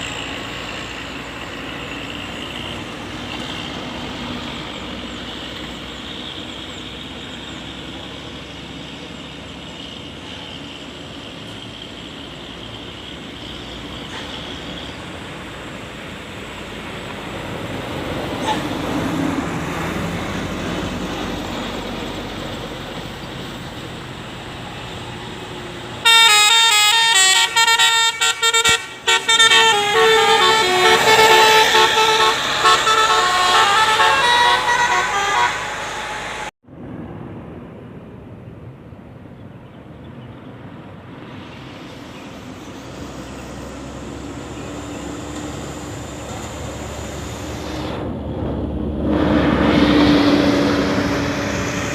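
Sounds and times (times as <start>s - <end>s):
passing vehicle road noise: 0.0s - 51.9s
bus multi-tone horn melody: 26.0s - 36.5s.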